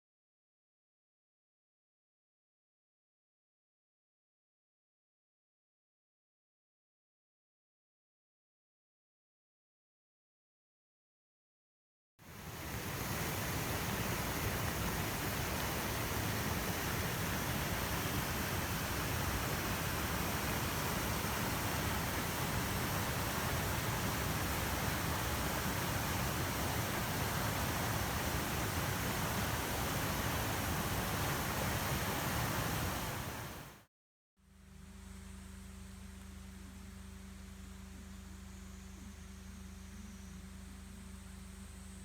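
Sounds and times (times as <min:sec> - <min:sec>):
faint steady hum: 0:12.2 - 0:33.8, 0:34.4 - 0:42.0
waterfall rushing: 0:12.3 - 0:33.8.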